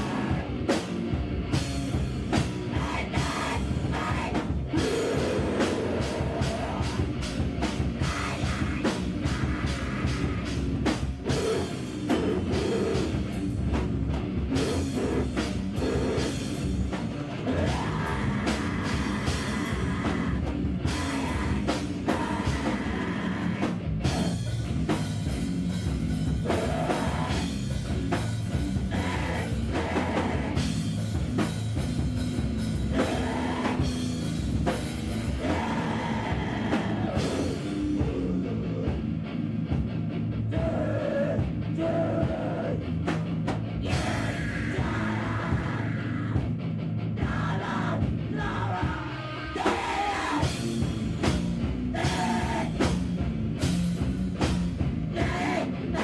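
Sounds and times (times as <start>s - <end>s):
live rock band playing: 0.0s - 56.0s
pounding drum kit: 0.0s - 56.0s
person singing: 2.7s - 7.1s, 17.5s - 24.4s, 43.9s - 46.5s, 47.2s - 50.7s, 52.0s - 53.0s, 55.1s - 56.0s.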